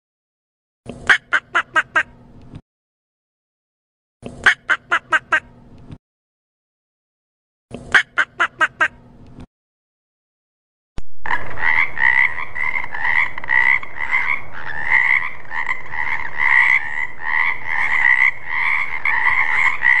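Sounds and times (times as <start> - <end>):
duck calls: 1.1 - 2.1, 4.4 - 5.5, 7.9 - 9.0, 11.3 - 20.0
frogs croaking: 11.2 - 20.0.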